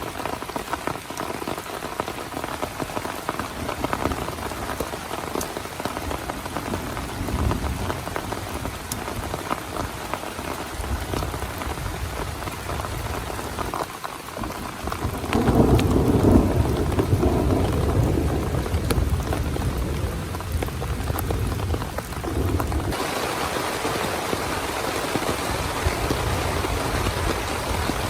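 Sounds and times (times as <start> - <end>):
heavy rain on a tent: 0.0 - 28.0
thunder rumbling: 5.9 - 10.0, 14.4 - 28.0.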